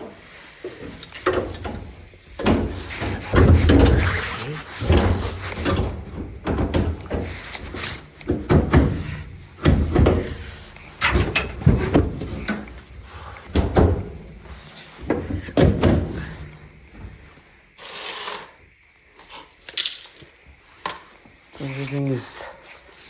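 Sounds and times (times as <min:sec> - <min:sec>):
panels knocking and clunking: 0:00.0 - 0:17.4.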